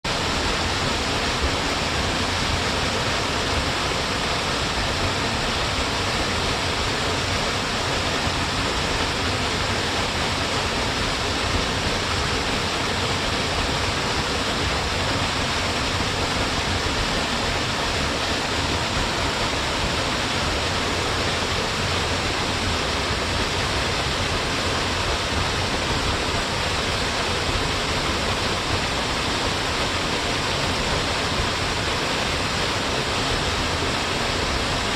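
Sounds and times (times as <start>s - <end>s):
waterfall falling water: 0.0s - 34.9s.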